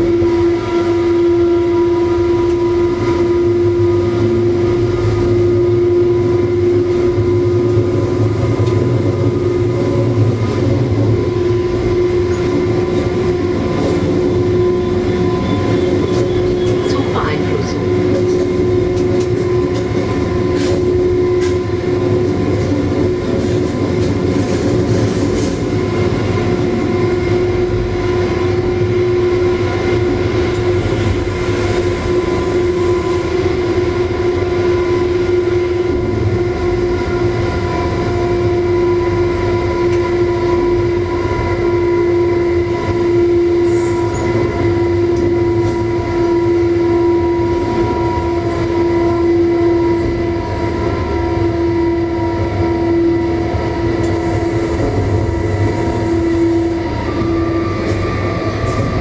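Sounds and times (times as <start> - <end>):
wheels rumbling on rail: 0.0 - 59.0
droning whine: 25.8 - 59.0.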